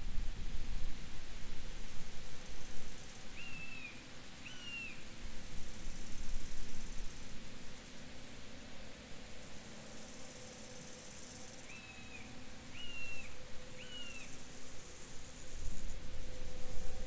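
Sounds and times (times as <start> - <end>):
insects humming: 0.1 - 17.0
bird whistled calls: 11.7 - 14.2.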